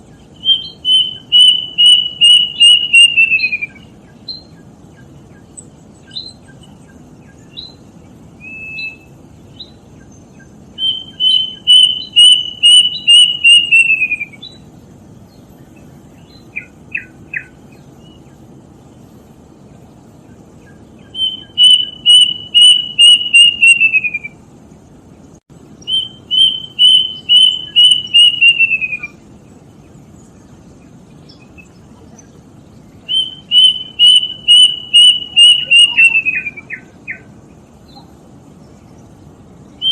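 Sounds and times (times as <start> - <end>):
bird chirps: 0.0 - 39.9
cuckoo whistled song: 0.2 - 7.8, 8.4 - 14.7, 16.2 - 18.3, 20.3 - 24.4, 25.8 - 29.2, 33.0 - 37.3.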